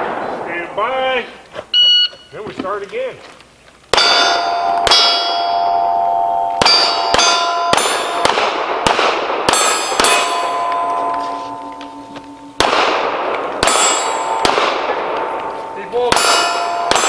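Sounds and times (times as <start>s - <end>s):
steel target plates ringing: 3.9s - 8.7s, 9.4s - 17.0s
pistol shots: 3.9s - 17.0s.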